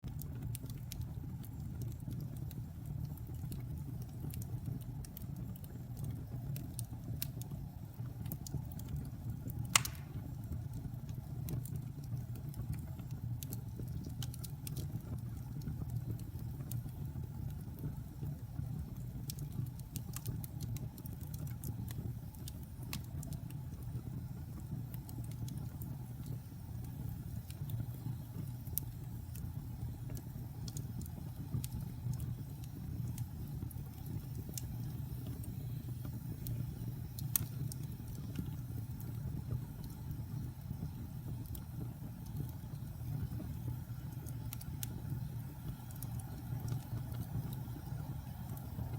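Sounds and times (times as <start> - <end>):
faint fire crackles: 0.0 - 48.9
fire rumbling in fireplace: 0.0 - 48.9
sharp pop: 9.8 - 10.2.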